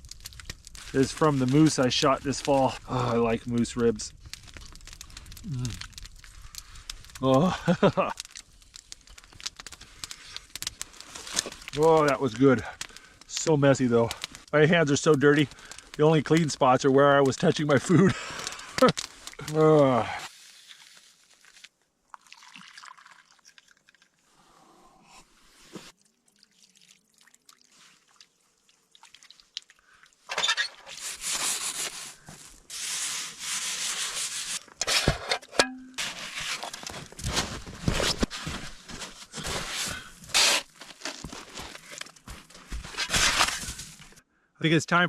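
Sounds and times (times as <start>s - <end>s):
rough rubbing and scraping: 30.3s - 44.1s.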